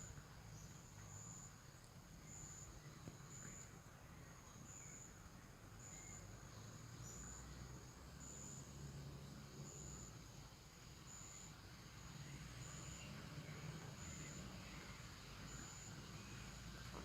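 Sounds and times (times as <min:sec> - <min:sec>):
soft bird chirps: 0:02.2 - 0:08.6, 0:11.1 - 0:17.0
insect high-pitched buzz: 0:05.8 - 0:16.8.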